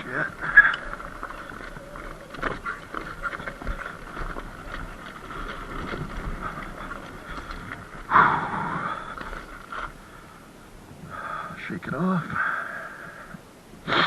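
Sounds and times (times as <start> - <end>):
knocks and rattles from bumps: 0.0 - 8.2.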